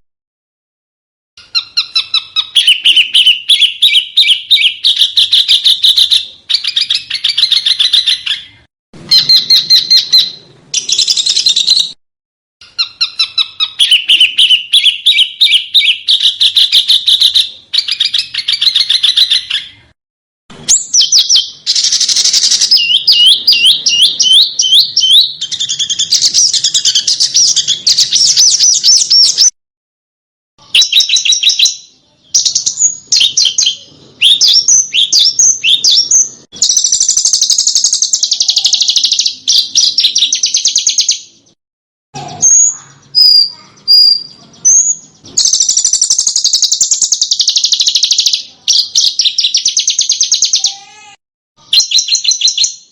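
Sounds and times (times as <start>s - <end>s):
songbirds chattering: 1.4s - 12.0s, 12.6s - 20.0s, 20.7s - 29.5s, 30.6s - 41.6s, 42.2s - 52.7s.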